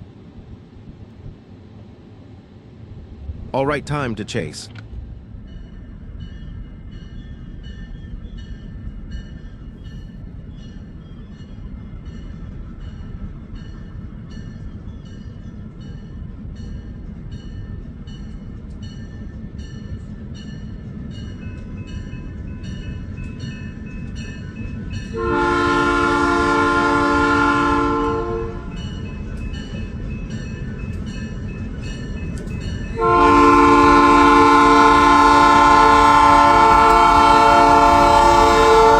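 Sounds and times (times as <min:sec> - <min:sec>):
locomotive rumble: 0:00.0 - 0:38.9
locomotive horn blast: 0:25.1 - 0:28.8, 0:33.0 - 0:38.9.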